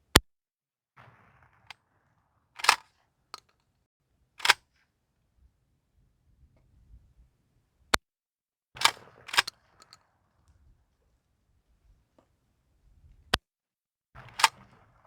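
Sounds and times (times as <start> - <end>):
shotgun blasts: 14.2 - 15.0.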